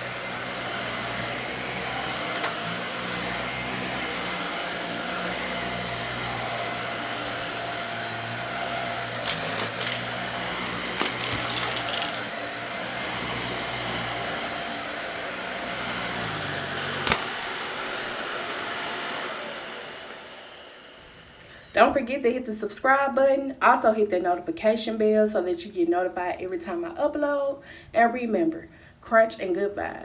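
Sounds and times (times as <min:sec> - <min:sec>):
vacuum cleaner running: 0:00.0 - 0:22.1
debris clicking in vacuum: 0:09.1 - 0:10.2, 0:10.8 - 0:12.4, 0:17.0 - 0:17.6.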